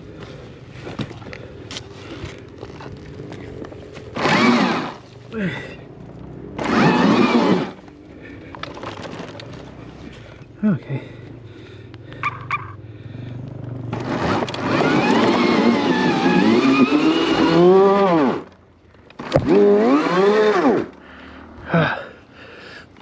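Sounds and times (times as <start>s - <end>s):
electric motor whining: 2.4s - 5.6s, 6.6s - 8.0s, 13.9s - 21.0s.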